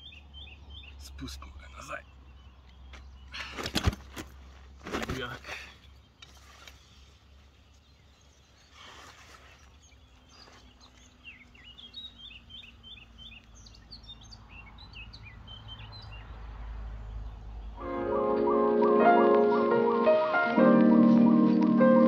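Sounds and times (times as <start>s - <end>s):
small birds chirping: 0.0s - 17.9s
mesh sling rustling: 8.7s - 9.8s.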